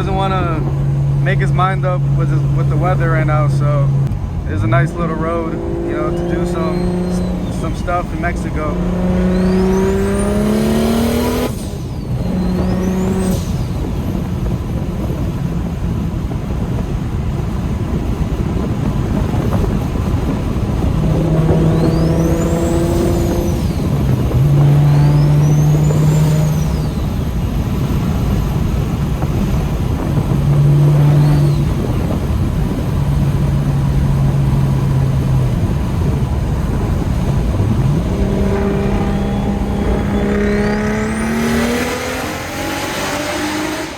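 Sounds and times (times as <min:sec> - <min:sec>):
car engine revving: 0:00.0 - 0:43.9
road and wind noise: 0:00.0 - 0:43.9
high whine: 0:36.0 - 0:43.9.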